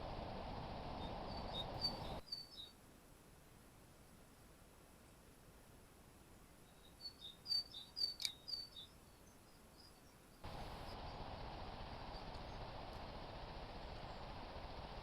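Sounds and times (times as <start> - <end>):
steady hiss: 0.0 - 2.2, 10.4 - 15.0
bird chirping: 0.9 - 2.8, 6.6 - 11.2
faint clicks: 10.5 - 15.0.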